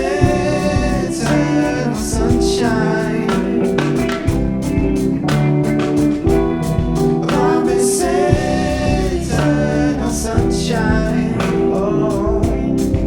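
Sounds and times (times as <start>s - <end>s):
drums: 0.0s - 13.0s
electric guitar: 0.0s - 13.0s
keyboard: 0.0s - 13.0s.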